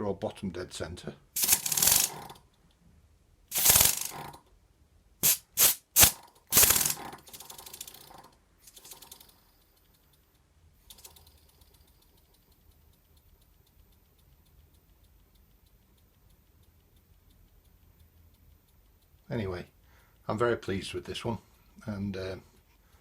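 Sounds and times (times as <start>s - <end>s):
steam engine hissing exhaust puffs: 1.4s - 2.2s, 3.5s - 4.3s, 5.2s - 7.8s
steam engine rapid ticking: 1.4s - 2.3s, 3.5s - 4.3s, 5.2s - 9.2s.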